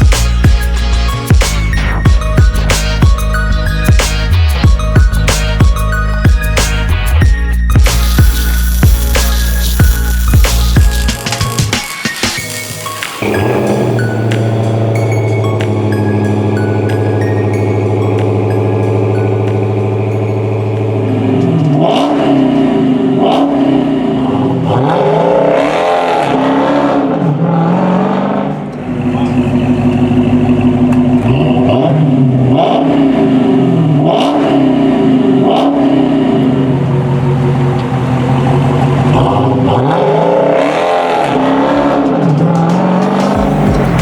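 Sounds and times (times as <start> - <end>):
car engine revving and idling: 13.2 - 44.0.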